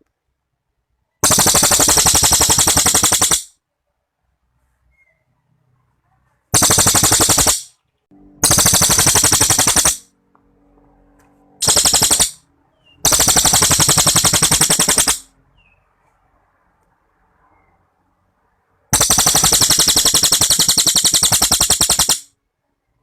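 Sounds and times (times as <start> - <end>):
songbird rattling song: 1.1 - 3.6, 6.5 - 10.1, 11.6 - 15.9, 18.9 - 22.4.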